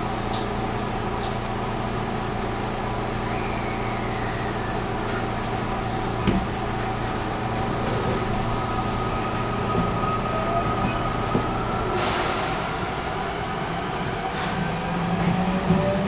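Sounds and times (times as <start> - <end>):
train motor hum: 4.1 - 16.0.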